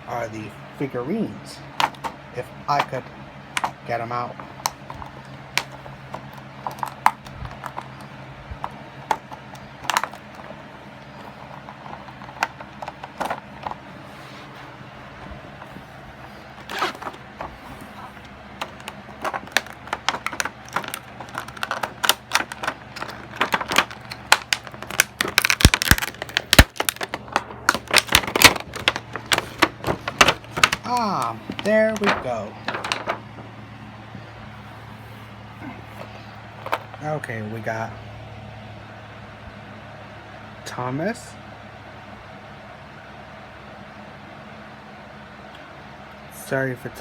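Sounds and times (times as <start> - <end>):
toy packaging clicks and crackles: 3.6 - 13.8, 15.6 - 33.2.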